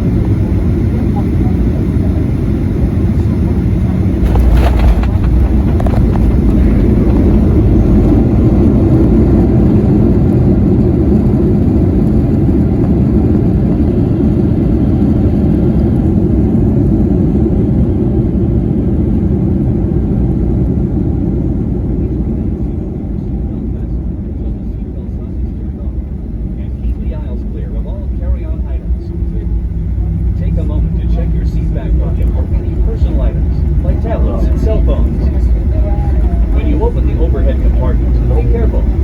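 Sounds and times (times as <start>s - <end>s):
airplane cabin engine rumble: 0.0s - 39.0s.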